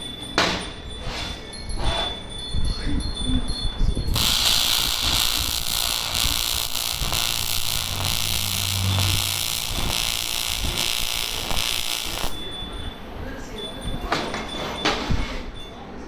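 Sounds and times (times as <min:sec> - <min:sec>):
welding arc crackling hiss: 0:04.1 - 0:12.5.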